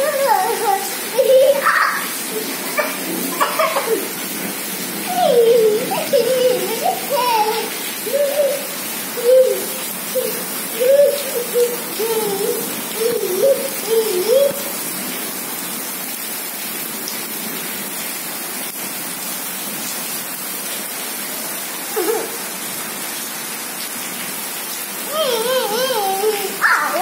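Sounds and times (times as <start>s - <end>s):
wavering voice-like sounds: 0.0s - 4.2s, 5.1s - 14.6s, 25.1s - 27.0s
heavy rain on pavement: 0.0s - 27.0s.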